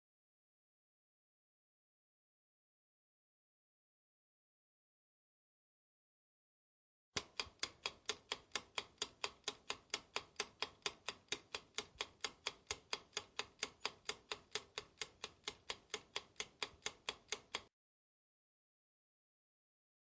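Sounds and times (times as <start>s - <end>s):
clock ticking fast: 7.2s - 17.7s.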